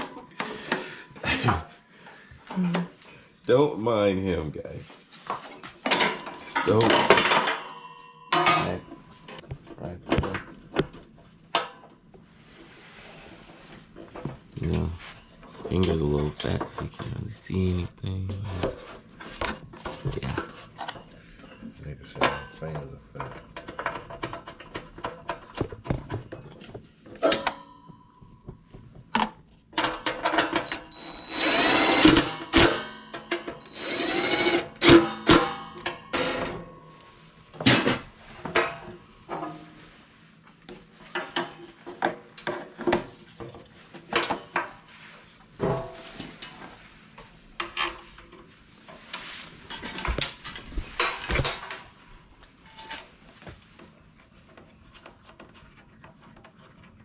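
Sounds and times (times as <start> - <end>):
tools and metal parts clanking: 5.1 - 12.0, 13.9 - 17.5, 18.4 - 28.4, 29.1 - 39.8, 41.0 - 44.9, 47.6 - 52.0
power drill spinning up: 30.9 - 32.6, 33.6 - 35.0.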